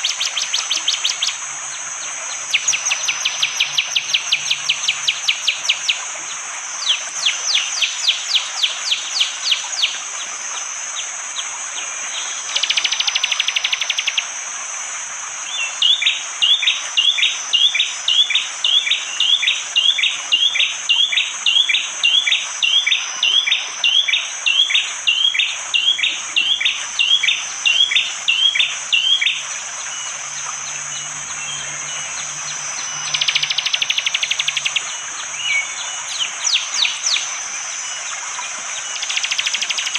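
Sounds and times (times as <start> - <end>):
forest ambience hiss: 0.0 - 39.9
bird singing: 2.3 - 6.0, 15.5 - 39.9.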